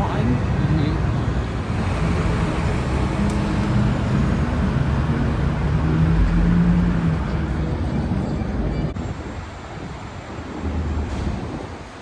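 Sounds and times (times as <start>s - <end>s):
engine hum: 0.0s - 9.0s
traffic rumble: 0.0s - 12.0s.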